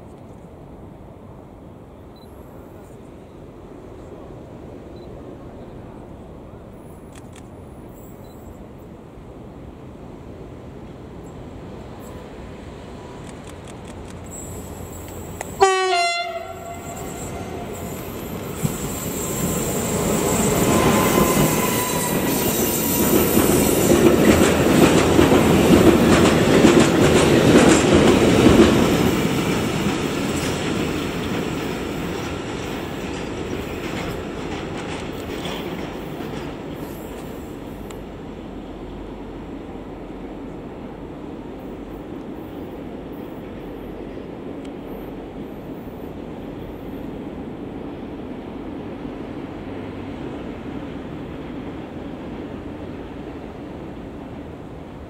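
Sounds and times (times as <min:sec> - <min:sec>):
locomotive horn blast: 0:15.6 - 0:18.1
train wheels rumbling and clattering: 0:16.3 - 0:55.0.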